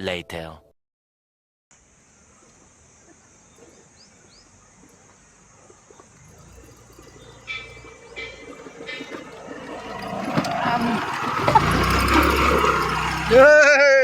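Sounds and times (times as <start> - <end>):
birds chirping: 1.8 - 13.7.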